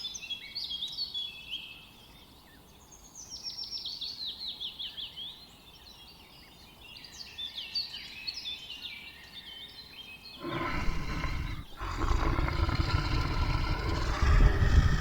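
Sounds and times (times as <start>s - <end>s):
lion roaring: 10.4s - 15.0s.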